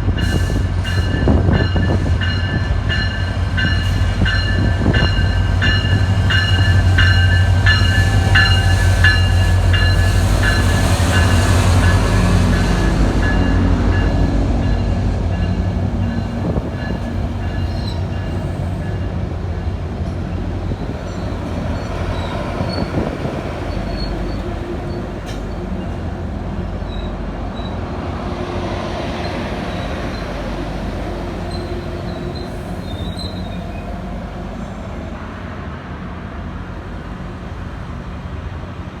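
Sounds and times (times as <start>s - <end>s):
low train engine hum: 0.0s - 39.0s
train rolling rumble: 0.0s - 39.0s
train bell ringing: 0.2s - 19.2s, 20.7s - 26.0s
faint wheel squeals: 31.5s - 33.9s.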